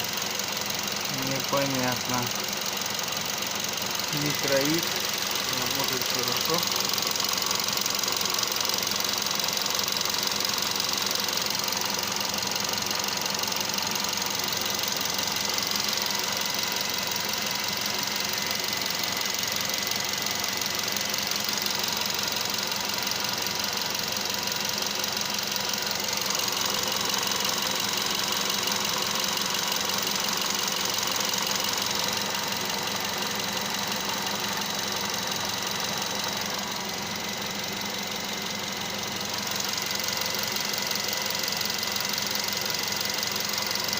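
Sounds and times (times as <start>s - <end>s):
car engine idling with clatter: 0.0s - 43.9s.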